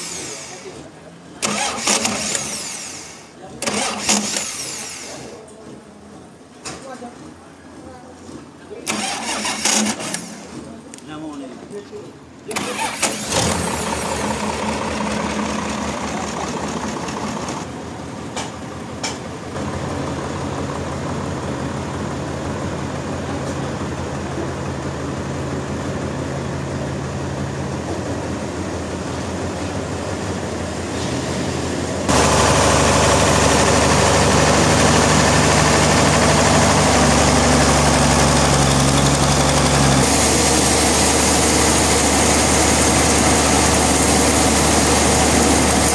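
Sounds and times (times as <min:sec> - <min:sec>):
engine running with low hum: 0:12.6 - 0:45.9.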